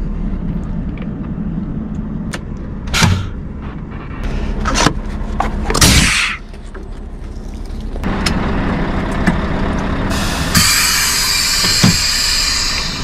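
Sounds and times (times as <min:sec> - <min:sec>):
truck engine running: 0:00.0 - 0:13.0
sharp knocks and clunks: 0:02.3 - 0:03.9.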